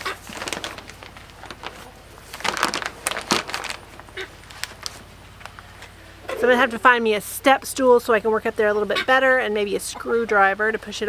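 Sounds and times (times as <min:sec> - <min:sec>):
fabric rustling and crinkling: 0:00.0 - 0:05.9
low steady hum: 0:00.0 - 0:11.0.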